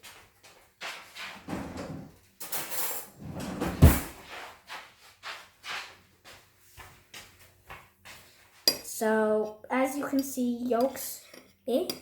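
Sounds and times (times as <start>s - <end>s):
kitchen drawer opening and shutting: 1.4s - 4.2s
cutlery rattling: 2.4s - 4.1s.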